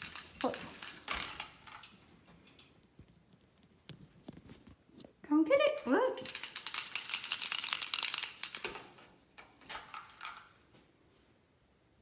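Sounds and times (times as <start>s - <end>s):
toy rattle shaken: 0.0s - 2.4s, 6.1s - 10.7s.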